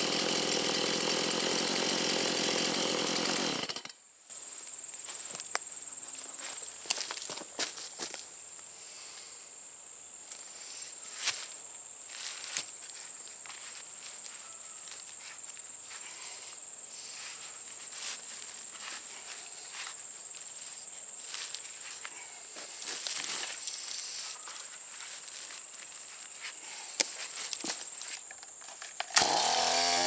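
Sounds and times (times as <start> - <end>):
footsteps in leaf litter: 11.0 - 28.3.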